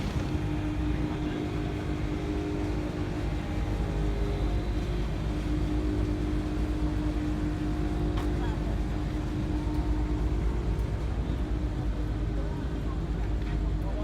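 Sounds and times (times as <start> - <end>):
machinery drone: 0.0 - 1.3.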